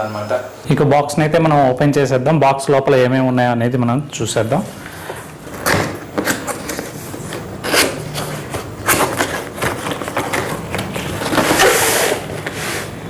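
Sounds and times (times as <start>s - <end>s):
cardboard box scraping and rustling: 5.4s - 13.0s.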